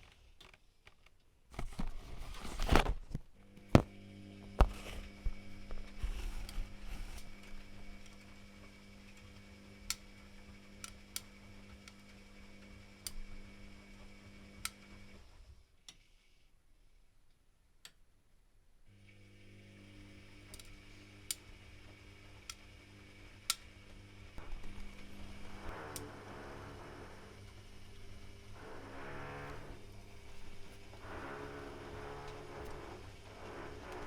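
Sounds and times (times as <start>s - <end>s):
washing machine motor hum: 3.4s - 15.5s, 18.9s - 34.0s.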